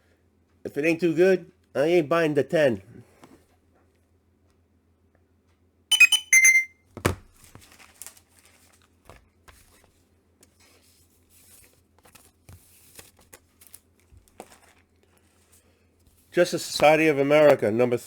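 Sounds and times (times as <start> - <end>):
high electronic beeps: 5.9 - 6.7.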